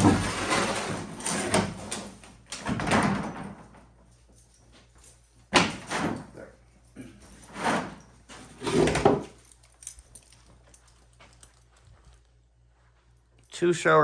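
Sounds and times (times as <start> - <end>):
handling scrapes and rattles: 0.0 - 2.3, 5.8 - 11.9.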